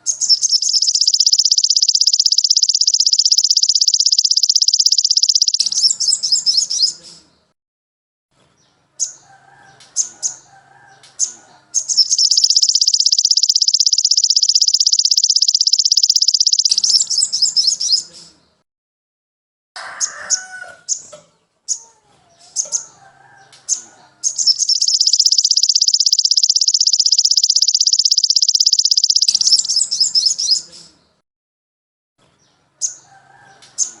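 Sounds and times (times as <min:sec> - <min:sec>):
songbird singing rapid trill: 0:00.0 - 0:07.1, 0:11.2 - 0:18.2, 0:24.2 - 0:31.0
bird chirps: 0:00.0 - 0:07.5, 0:11.2 - 0:18.6, 0:22.5 - 0:31.2.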